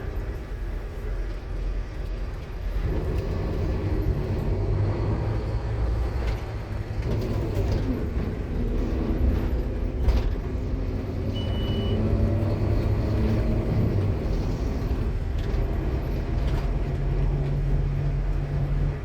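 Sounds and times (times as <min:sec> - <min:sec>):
bus engine drone: 0:00.0 - 0:19.0
high beep: 0:11.3 - 0:12.0.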